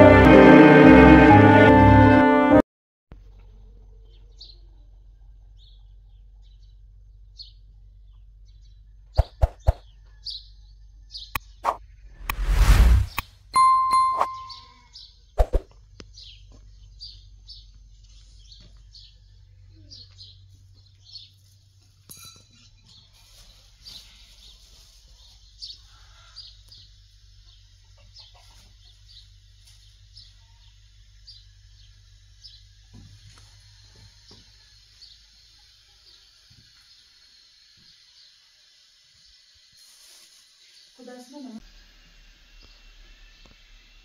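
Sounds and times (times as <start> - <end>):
small birds chirping: 3.2 - 12.2, 13.9 - 39.7
bell-like ding: 13.6 - 14.8.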